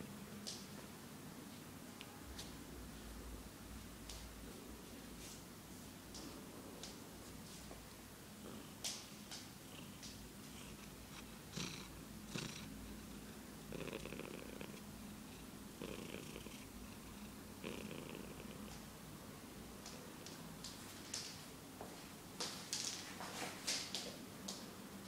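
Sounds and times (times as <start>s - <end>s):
cat purring: 8.4s - 18.8s.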